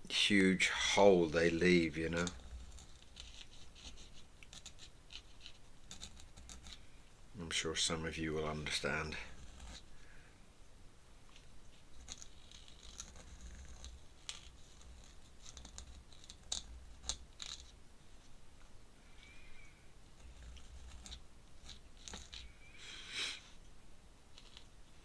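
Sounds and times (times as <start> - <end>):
pen scratching on paper: 1.2 - 6.8, 8.4 - 9.9, 11.7 - 17.8, 20.1 - 22.5.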